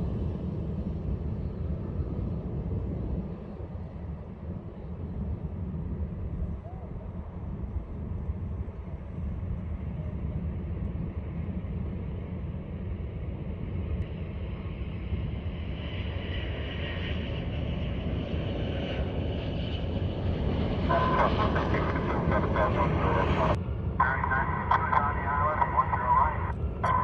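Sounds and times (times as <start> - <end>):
jet engine whine: 0.0 - 27.0
jet engines rumbling: 0.0 - 27.0.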